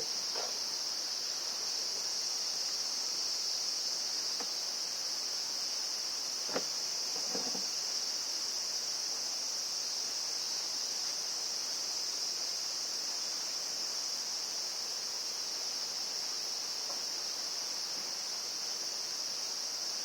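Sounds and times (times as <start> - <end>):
insect chorus: 0.0 - 20.0
faint small knocks: 6.5 - 7.7.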